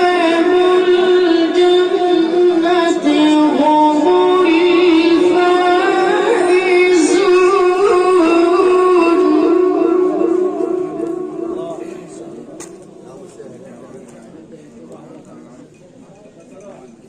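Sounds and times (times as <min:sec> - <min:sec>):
child chanting melodically: 0:00.0 - 0:12.6.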